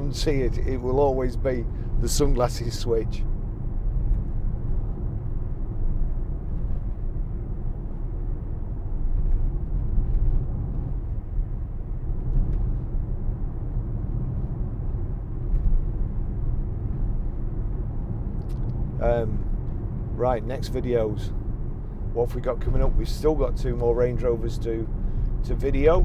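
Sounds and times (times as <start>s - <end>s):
car interior road rumble: 0.0s - 26.0s.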